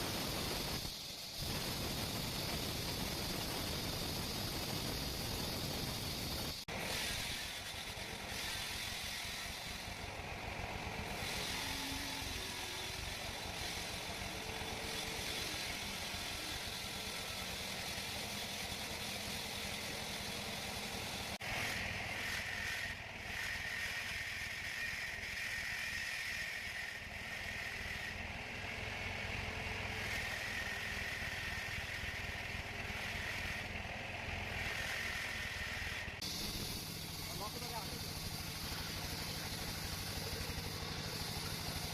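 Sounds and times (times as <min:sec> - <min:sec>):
steady high whine: 0:00.0 - 0:06.6, 0:34.4 - 0:41.9
sawmill machinery running: 0:00.0 - 0:41.9.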